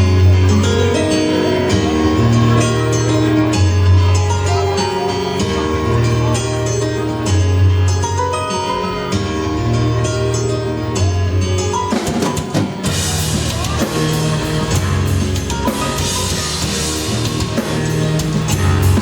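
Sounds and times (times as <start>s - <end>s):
live band playing instrumental: 0.0s - 19.0s
drum and cymbal beat: 11.8s - 19.0s.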